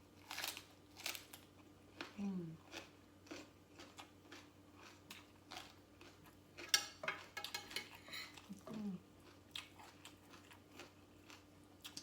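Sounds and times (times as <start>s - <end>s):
crunchy chewing: 0.2s - 7.4s, 8.1s - 12.0s
utensil clinking on plate: 6.7s - 8.3s.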